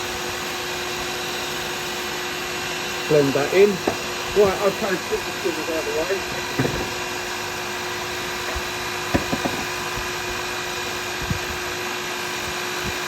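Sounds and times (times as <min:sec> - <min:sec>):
wood lathe motor humming: 0:00.9 - 0:10.6
tools knocking: 0:06.5 - 0:06.9, 0:08.5 - 0:09.7.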